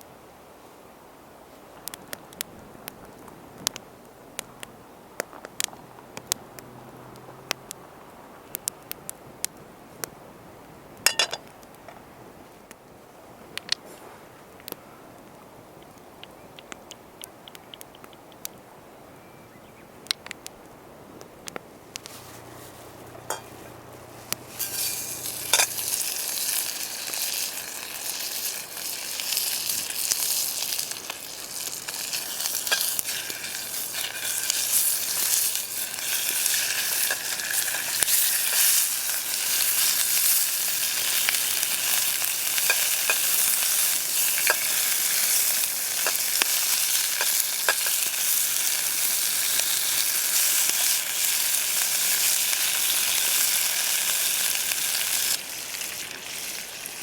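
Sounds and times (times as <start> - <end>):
food sizzling in hot oil: 24.4 - 57.0
utensil stirring clicks: 40.9 - 48.0.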